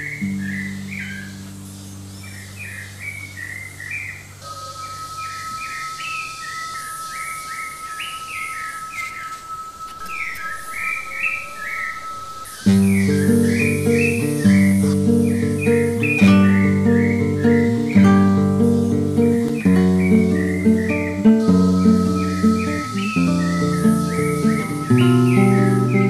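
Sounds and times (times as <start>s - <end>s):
small birds chirping: 0.0s - 26.0s
thin steady high tone: 0.0s - 26.0s
acoustic guitar chord: 12.6s - 26.0s.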